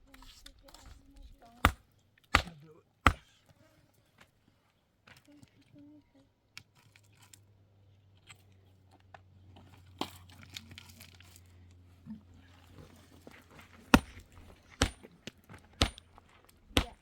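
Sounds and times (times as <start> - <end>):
cement scraping and crunching: 8.2 - 17.0
sharp knocks: 13.9 - 15.1, 15.8 - 16.0.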